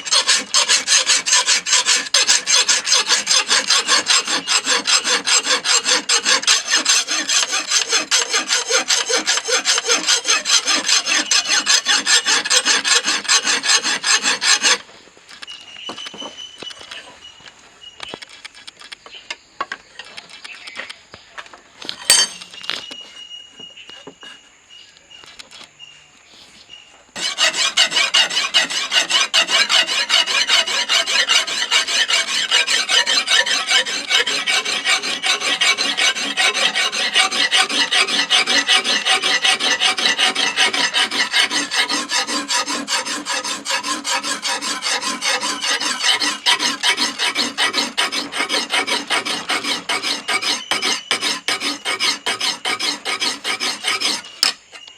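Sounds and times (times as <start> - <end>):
knife blade rasping on abrasive: 27.2 - 54.7.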